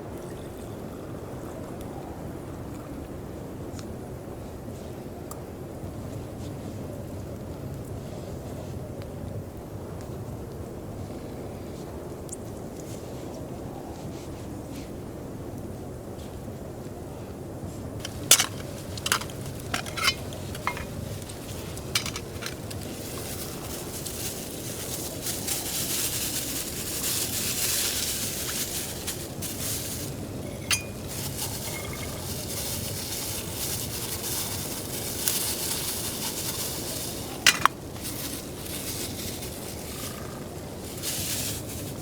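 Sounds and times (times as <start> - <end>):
metal utensil scraping a pan: 18.0 - 22.8, 30.4 - 37.8
food sizzling: 25.6 - 42.0.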